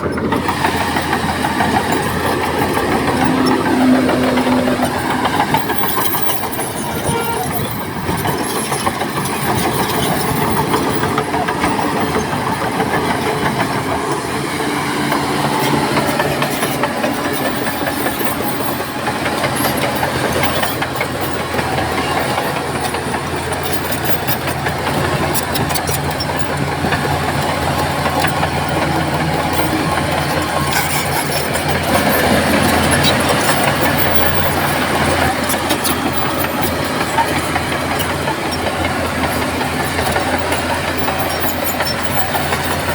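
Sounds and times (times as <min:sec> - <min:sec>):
bulldozer diesel engine running: 0:00.0 - 0:42.9
metallic clatter: 0:15.6 - 0:42.9.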